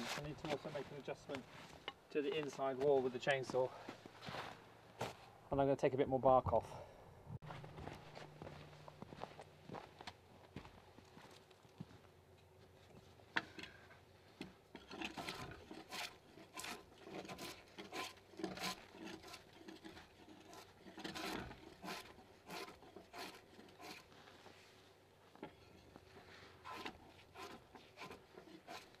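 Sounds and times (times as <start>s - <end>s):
tool scraping bark off log: 14.8s - 24.2s, 25.5s - 29.0s.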